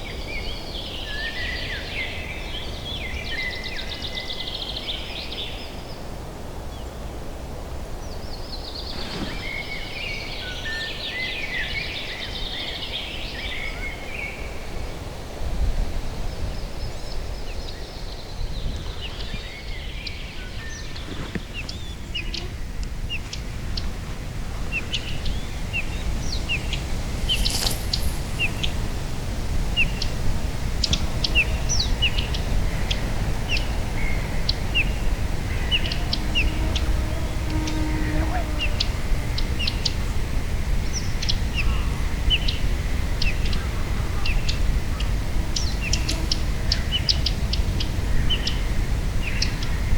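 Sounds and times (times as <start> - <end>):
songbirds singing: 16.2 - 49.9.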